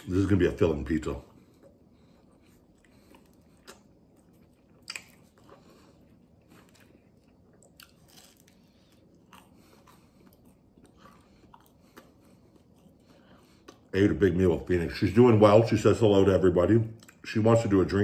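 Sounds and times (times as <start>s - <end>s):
person chewing crunchy crust: 1.3s - 14.0s.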